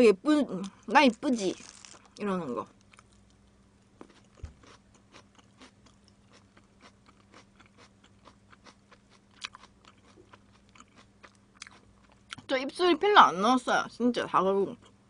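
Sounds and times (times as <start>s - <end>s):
faint electrical hum: 0.0s - 15.0s
chewing crunchy food: 1.4s - 12.5s.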